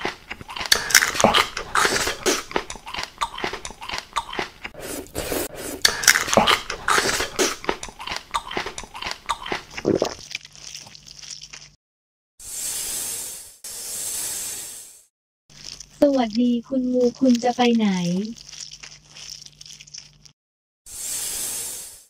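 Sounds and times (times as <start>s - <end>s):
crunchy biting and chewing: 0.0s - 11.8s, 15.5s - 20.4s.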